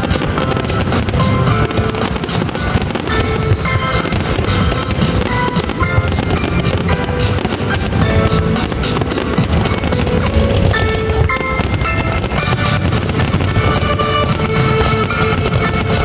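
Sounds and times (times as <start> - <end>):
fireworks bursting: 0.0 - 16.0
music playing: 0.0 - 16.0.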